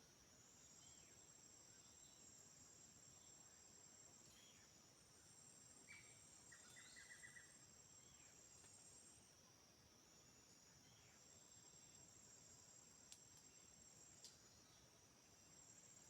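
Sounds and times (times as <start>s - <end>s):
high-pitched insect chorus: 0.3s - 9.4s, 10.1s - 16.0s.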